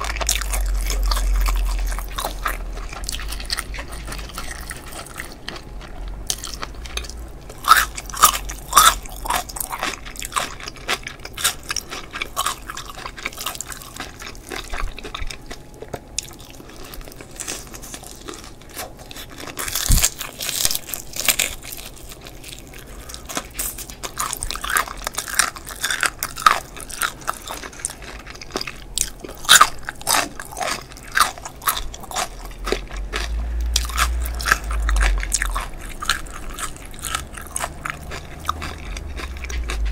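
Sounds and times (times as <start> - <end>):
crunching fried chicken crust: 0.0 - 39.9
quiet chewing: 0.0 - 39.9.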